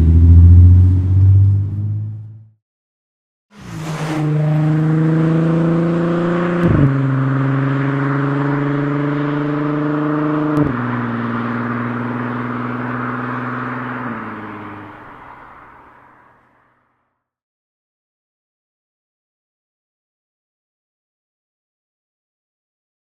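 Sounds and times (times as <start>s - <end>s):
car engine accelerating with upshifts: 3.6s - 15.8s.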